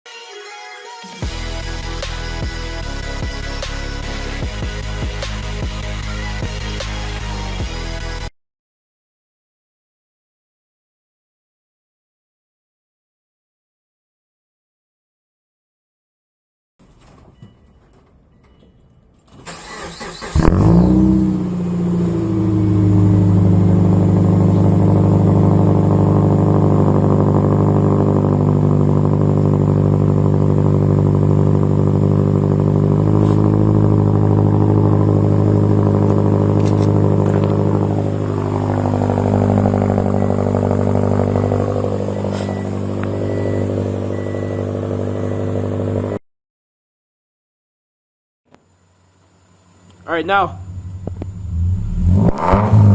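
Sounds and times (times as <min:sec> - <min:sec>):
car engine starter cranking: 0:19.3 - 0:22.1, 0:33.1 - 0:44.2
loud unmuffled engine idling: 0:22.6 - 0:46.2.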